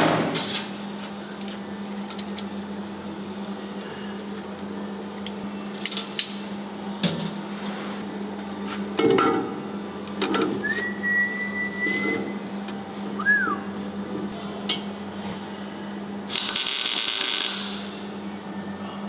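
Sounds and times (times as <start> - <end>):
person whistling: 10.6 - 12.4, 13.2 - 13.8.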